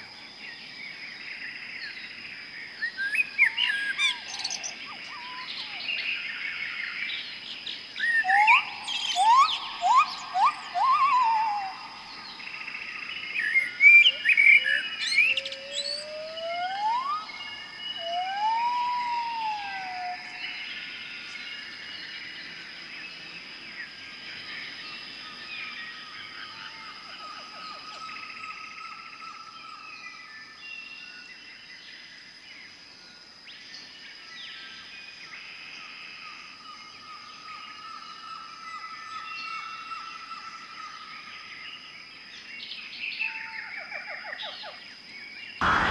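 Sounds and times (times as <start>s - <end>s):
soft overlapping bird notes: 0.0s - 45.9s
whistled bird calls: 2.9s - 6.3s, 8.0s - 20.9s, 45.6s - 45.9s
sharp bird chirps: 8.0s - 20.8s, 45.6s - 45.9s
high-pitched drone: 45.6s - 45.9s.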